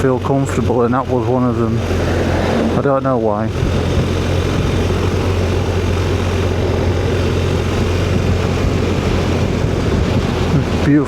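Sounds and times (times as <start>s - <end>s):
motorcycle engine drone: 0.0s - 11.0s
road and wind noise: 0.0s - 11.0s.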